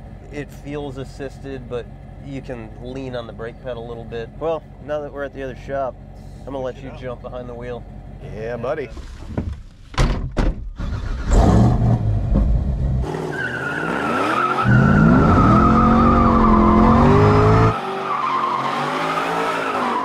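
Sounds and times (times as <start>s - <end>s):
sharp knocks: 9.3s - 10.7s
car engine revving hard: 11.0s - 20.0s
tires squealing: 13.0s - 20.0s.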